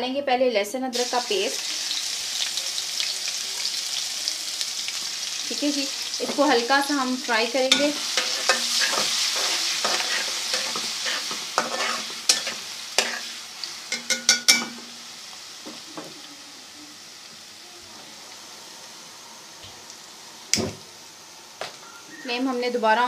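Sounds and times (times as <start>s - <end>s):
paste sizzling in hot fat: 1.0s - 17.6s
spoon scraping and clinking on pan: 7.7s - 13.3s, 13.9s - 14.9s.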